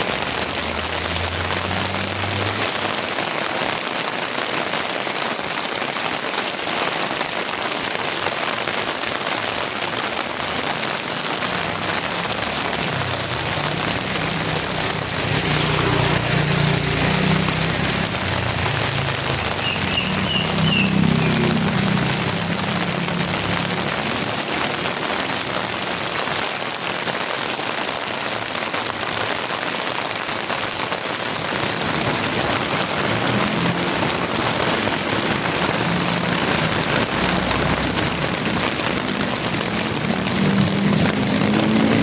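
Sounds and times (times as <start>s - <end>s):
heavy rain falling: 0.0s - 42.0s
short high chirps: 19.6s - 21.4s.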